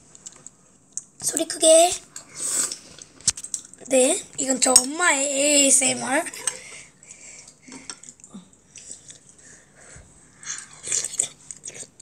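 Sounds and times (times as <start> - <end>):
child chewing and slurping: 2.0 - 3.9, 6.3 - 12.0.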